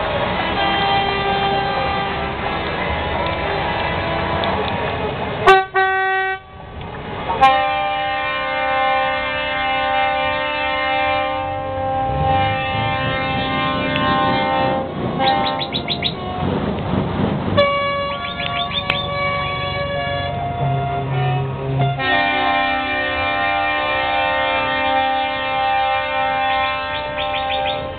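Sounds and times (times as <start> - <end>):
truck air horn blasts: 0.0 - 2.5, 5.4 - 6.7, 7.4 - 16.6, 17.6 - 27.9.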